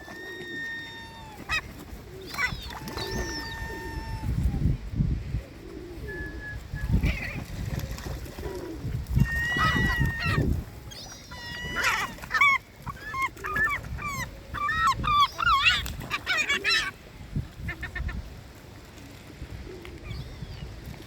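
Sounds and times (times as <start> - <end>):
birds calling: 0.0 - 4.2, 9.2 - 17.0.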